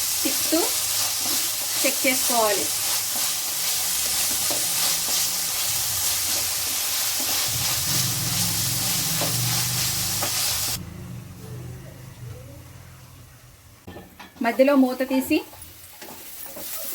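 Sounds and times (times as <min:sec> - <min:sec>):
onions sizzling in oil: 0:00.0 - 0:10.8, 0:15.8 - 0:16.9
stirring scrapes: 0:00.9 - 0:10.7
faint low hum: 0:10.8 - 0:13.8.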